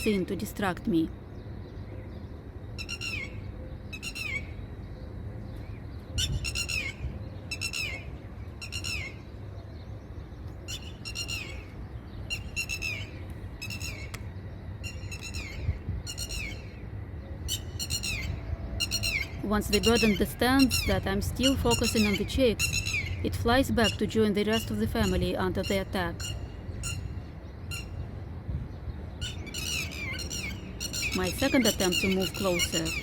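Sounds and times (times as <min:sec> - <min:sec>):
lapwing alarm calls: 0:02.8 - 0:04.6, 0:06.2 - 0:09.3, 0:10.7 - 0:14.2, 0:14.8 - 0:16.8, 0:17.5 - 0:28.0, 0:29.2 - 0:33.0.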